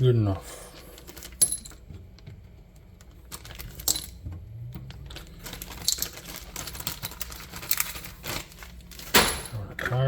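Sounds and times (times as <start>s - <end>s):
small metal parts clinking: 1.2s - 1.8s, 3.3s - 4.2s, 5.1s - 8.0s.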